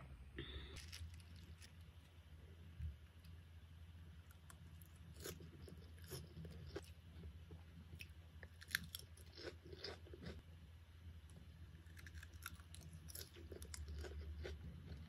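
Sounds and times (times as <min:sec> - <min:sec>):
chewing crunchy salad: 0:04.3 - 0:10.4, 0:11.8 - 0:15.0.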